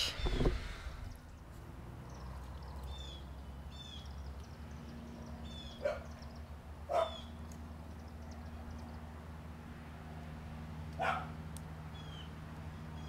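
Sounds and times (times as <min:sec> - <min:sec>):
bird singing: 0:00.0 - 0:09.0, 0:11.9 - 0:13.0.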